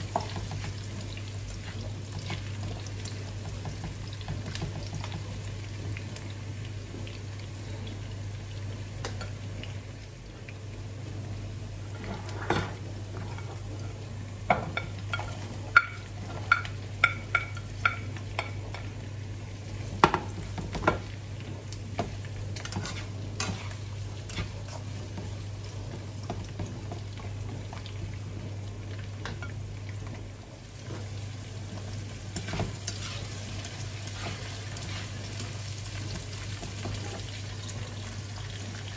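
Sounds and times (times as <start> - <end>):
vegetables sizzling in wok: 0.0 - 38.9
spatula scraping pan: 22.6 - 25.0, 32.4 - 35.6.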